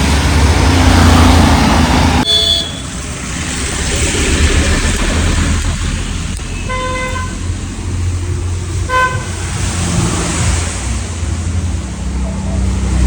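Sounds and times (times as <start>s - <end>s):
motorcycle running: 0.0s - 13.0s
vehicle horn tooting: 2.2s - 3.0s, 6.5s - 7.5s, 8.8s - 9.6s.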